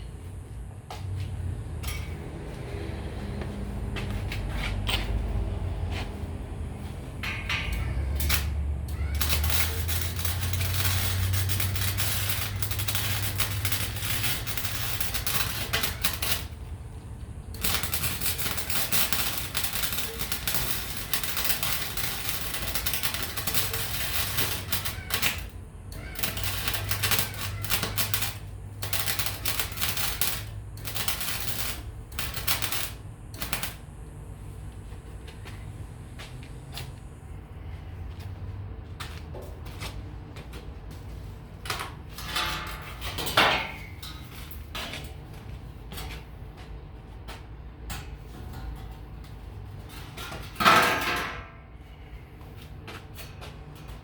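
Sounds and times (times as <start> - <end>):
welding arc crackling: 6.6 - 35.4.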